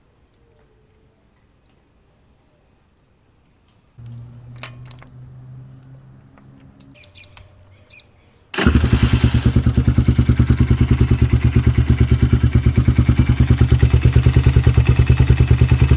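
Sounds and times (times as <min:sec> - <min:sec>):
dirt bike engine idling: 0:04.0 - 0:07.9, 0:08.6 - 0:15.9.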